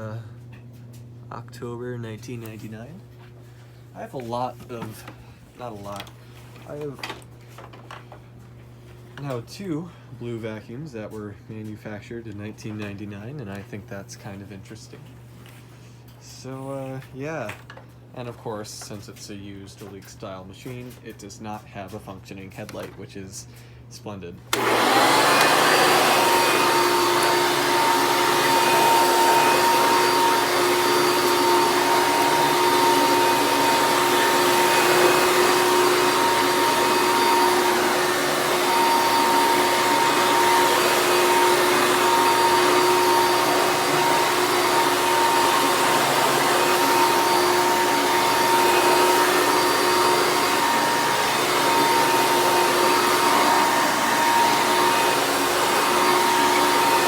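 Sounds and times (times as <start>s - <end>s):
vacuum cleaner running: 24.5s - 57.0s.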